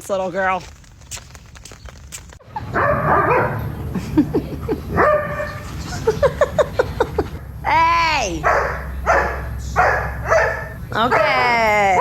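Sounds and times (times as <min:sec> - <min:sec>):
dog yipping and whining: 0:02.5 - 0:03.6, 0:08.5 - 0:11.5.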